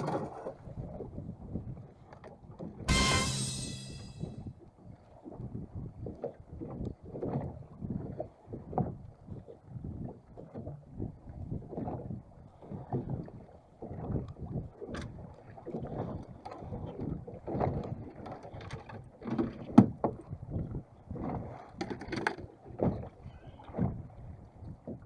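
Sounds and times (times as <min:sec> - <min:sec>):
sharp knock: 0:02.9 - 0:04.3
water lapping against boat hull: 0:13.7 - 0:24.1.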